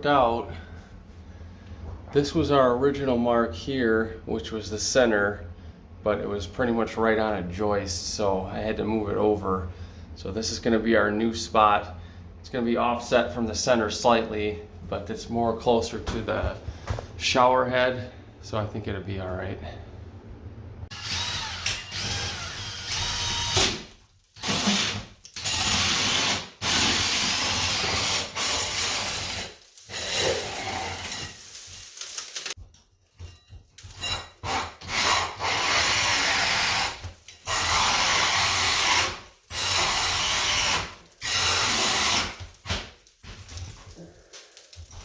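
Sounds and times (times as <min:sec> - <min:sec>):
power drill hole saw cutting: 0:20.9 - 0:23.8, 0:24.4 - 0:31.3, 0:34.4 - 0:42.4.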